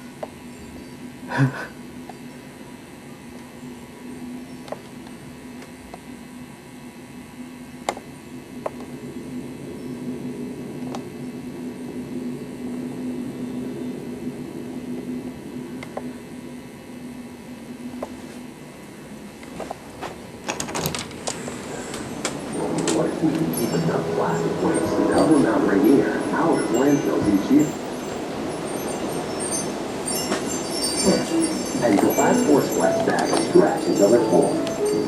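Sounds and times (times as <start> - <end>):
steady low hum: 0.0 - 35.0
door knocking and rattling in wind: 20.4 - 21.4.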